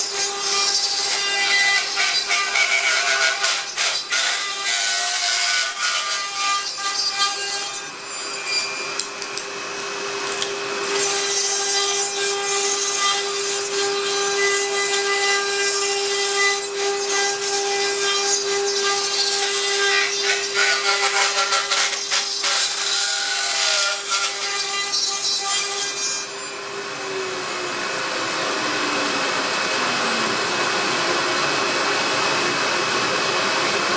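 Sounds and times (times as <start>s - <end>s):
router spindle whining: 0.0s - 33.9s
gritty rasping cutting: 28.5s - 31.8s.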